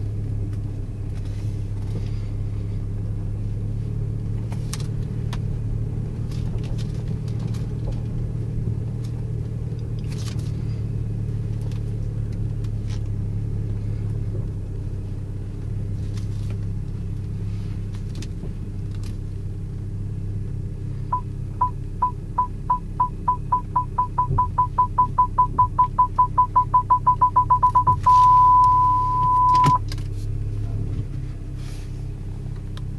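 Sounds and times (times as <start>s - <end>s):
car engine idling: 0.0s - 32.9s
parking sensor beeping: 21.1s - 29.9s.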